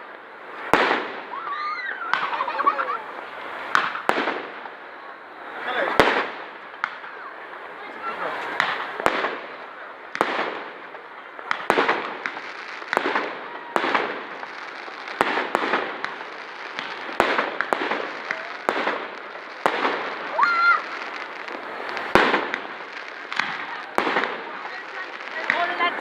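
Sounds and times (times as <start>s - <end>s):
fireworks banging with echo: 0.0s - 26.0s
firework rising whistle: 0.9s - 4.0s.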